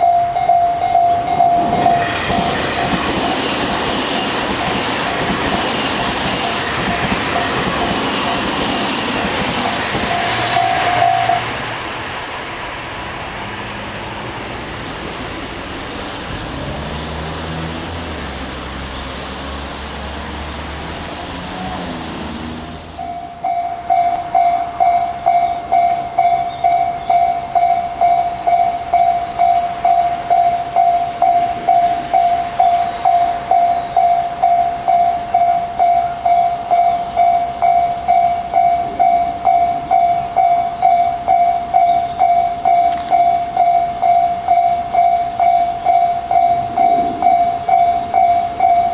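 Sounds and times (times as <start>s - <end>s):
level crossing warning bell: 0.0s - 11.6s, 23.0s - 48.9s
electric train rumbling past: 0.0s - 48.9s.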